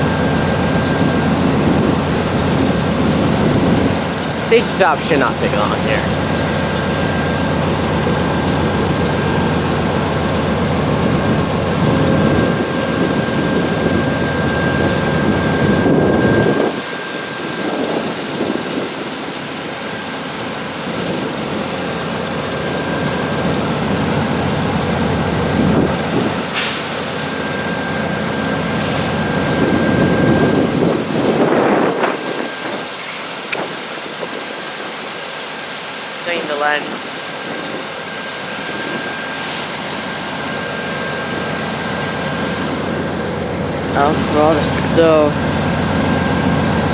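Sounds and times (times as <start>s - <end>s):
thin steady whine: 0.0s - 18.5s, 19.8s - 46.9s
diesel locomotive idling: 0.0s - 46.9s
wind buffeting microphone: 27.7s - 32.9s.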